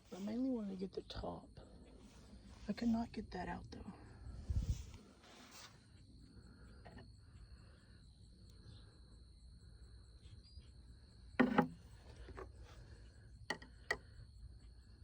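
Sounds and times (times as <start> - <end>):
insects calling: 5.8 - 15.0.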